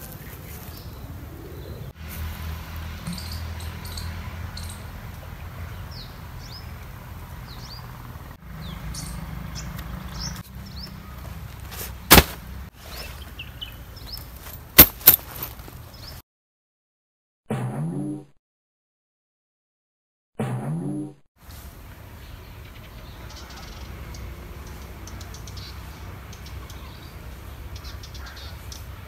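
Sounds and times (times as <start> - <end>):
birds chirping: 0.0 - 2.0, 3.0 - 16.2, 22.2 - 29.0
low outdoor rumble: 0.0 - 15.9.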